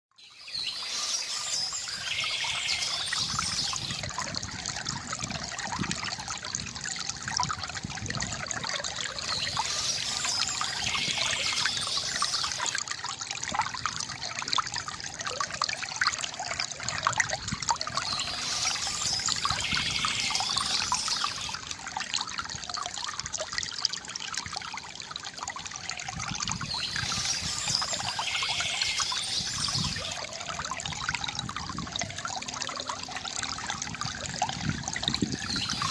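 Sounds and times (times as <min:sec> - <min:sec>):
fountain water trickling and splashing: 0:00.2 - 0:35.9
birds chirping: 0:00.3 - 0:04.0, 0:09.1 - 0:12.8, 0:17.8 - 0:21.6, 0:26.6 - 0:30.2.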